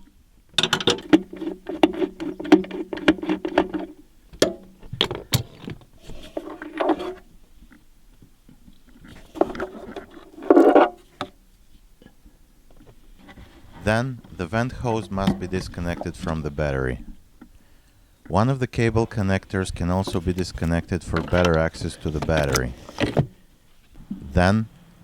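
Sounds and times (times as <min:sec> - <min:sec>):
metal clip scraping: 0:00.6 - 0:07.2, 0:20.0 - 0:23.2.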